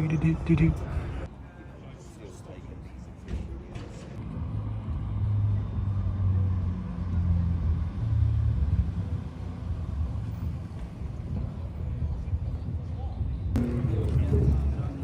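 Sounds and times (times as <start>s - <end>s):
car engine rumbling: 4.1s - 15.0s.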